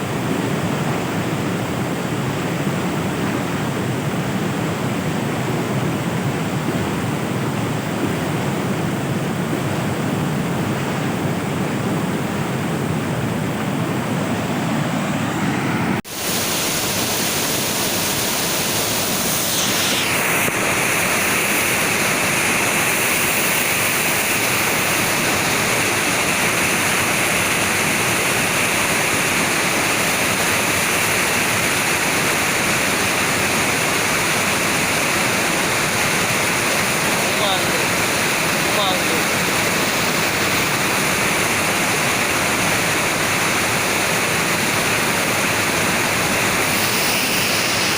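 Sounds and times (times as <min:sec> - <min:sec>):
floodwater rushing: 0:00.0 - 0:47.9.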